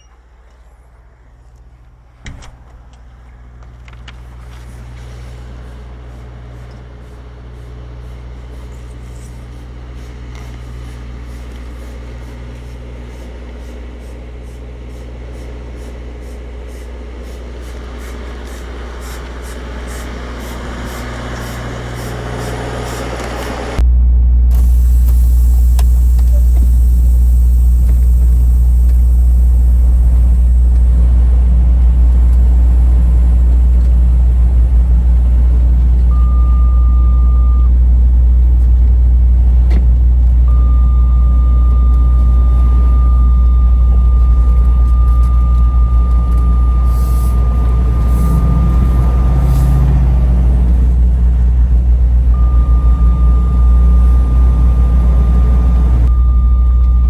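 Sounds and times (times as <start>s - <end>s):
truck engine rumbling: 0.0s - 57.0s
high electronic tone: 23.8s - 31.1s, 40.5s - 50.2s, 52.3s - 57.0s.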